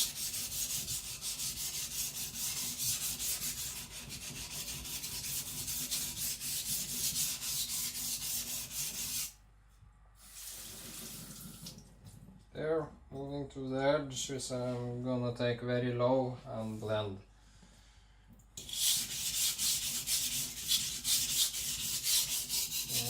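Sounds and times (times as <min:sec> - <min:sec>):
knife blade rubbing on whetstone: 0:18.6 - 0:23.0.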